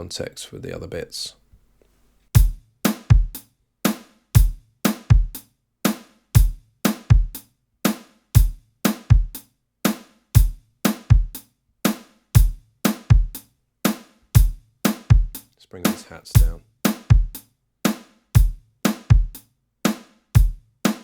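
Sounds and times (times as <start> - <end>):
kick drum: 2.4 - 5.4, 6.4 - 7.5, 8.4 - 9.4, 10.4 - 11.4, 12.4 - 13.5, 14.4 - 15.4, 16.4 - 17.5, 18.4 - 19.4, 20.4 - 21.0
drum kit groove: 2.4 - 21.0
hi-hats: 2.4 - 21.0
snare drum: 2.4 - 21.0.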